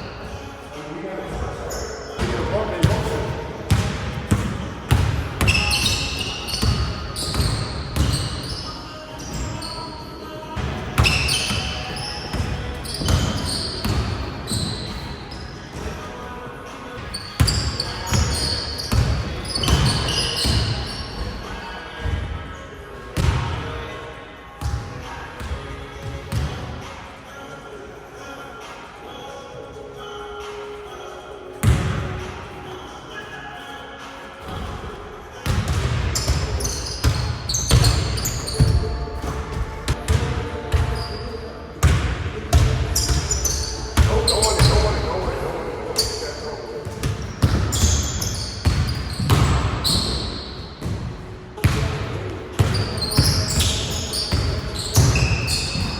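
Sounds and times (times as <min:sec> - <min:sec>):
sneakers squeaking: 0:00.0 - 0:27.4, 0:30.0 - 0:55.9
short high shoe squeaks: 0:01.7 - 0:02.2, 0:05.4 - 0:10.2, 0:11.0 - 0:15.7, 0:17.0 - 0:21.3, 0:36.1 - 0:39.1, 0:43.0 - 0:44.9, 0:47.3 - 0:50.8, 0:52.7 - 0:55.9
basketball bouncing on gym floor: 0:02.2 - 0:08.5, 0:35.4 - 0:41.2, 0:41.8 - 0:45.3, 0:46.8 - 0:52.0, 0:52.6 - 0:55.9.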